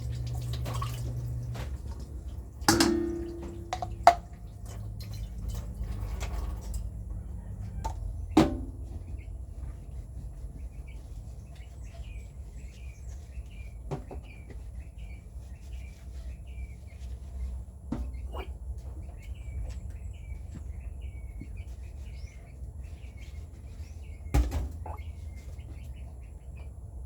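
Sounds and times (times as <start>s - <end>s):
low steady rumble: 0.0s - 24.2s
metal clank with ring: 2.7s - 4.0s
small birds chirping: 7.1s - 27.0s.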